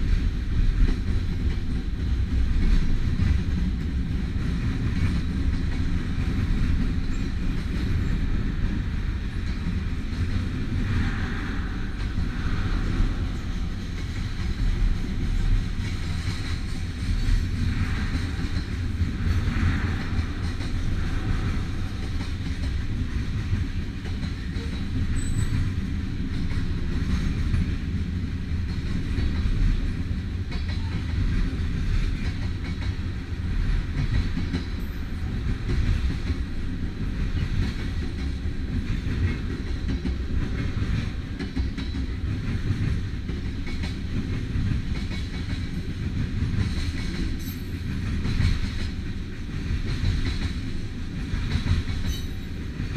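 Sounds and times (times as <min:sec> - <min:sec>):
train wheels rumbling on rail: 0:00.0 - 0:52.9
wheels clicking over rail joints: 0:13.1 - 0:52.9.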